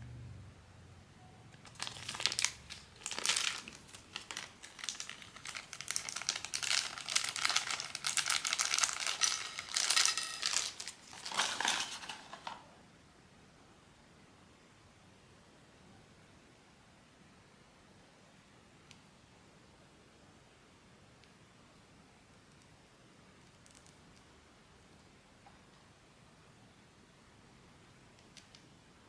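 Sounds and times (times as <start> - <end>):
plastic packaging crinkling: 1.6 - 12.6.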